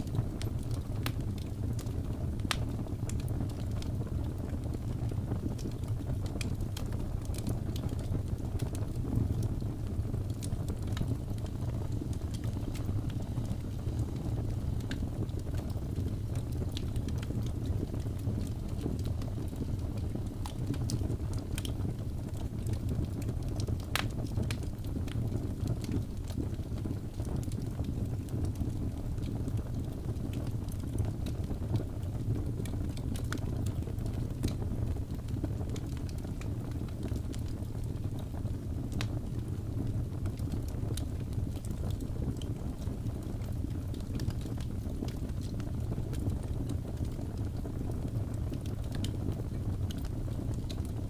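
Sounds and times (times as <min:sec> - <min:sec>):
fire crackling and popping: 0:00.0 - 0:51.0
low rumble of flames: 0:00.0 - 0:51.0.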